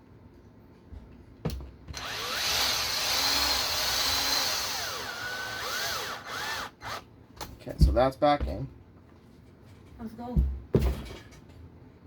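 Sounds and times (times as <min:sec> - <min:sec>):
electric screwdriver motor whine: 0:02.0 - 0:07.0.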